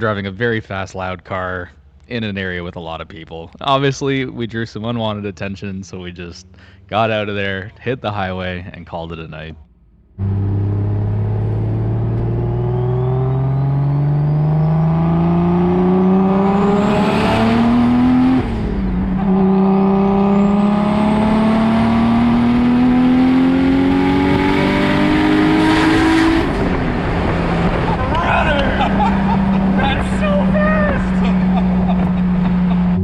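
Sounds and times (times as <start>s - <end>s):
turbo whine: 9.6s - 33.0s
car engine accelerating hard: 9.8s - 33.0s.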